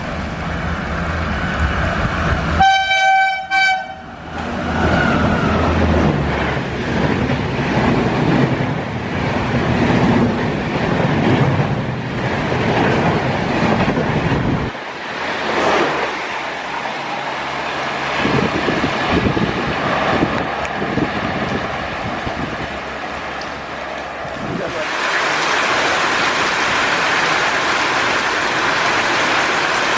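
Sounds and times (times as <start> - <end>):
train rumbling past: 0.0 - 29.9
wind noise: 0.5 - 2.7, 4.3 - 16.4, 17.4 - 25.0
rain hiss: 22.8 - 29.9.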